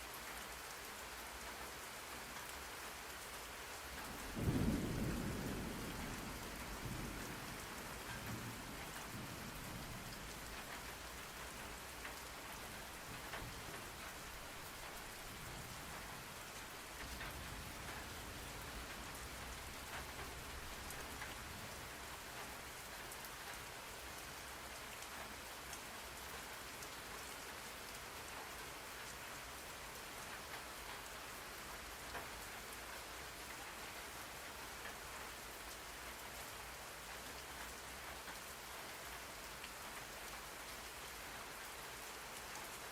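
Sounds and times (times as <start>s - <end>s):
rain falling: 0.0s - 42.9s
raindrops pattering on a surface: 0.0s - 42.9s.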